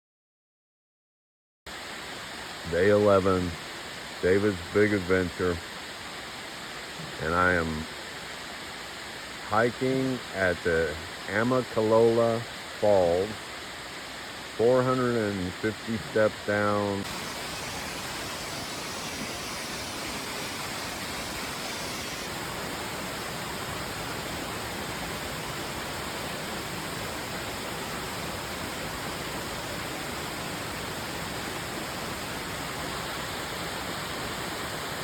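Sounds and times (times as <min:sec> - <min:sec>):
waterfall rushing: 0:01.7 - 0:35.0.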